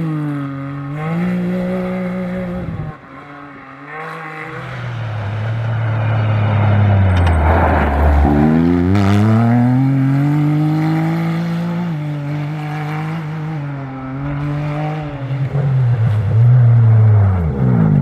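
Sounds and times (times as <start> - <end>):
car engine accelerating hard: 0.0 - 18.0.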